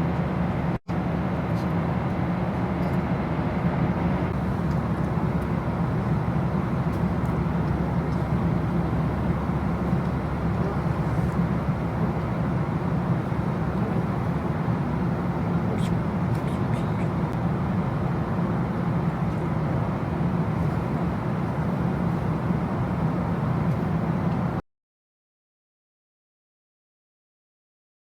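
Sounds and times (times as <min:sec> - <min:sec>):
moving vehicle rumble: 0:00.0 - 0:24.6.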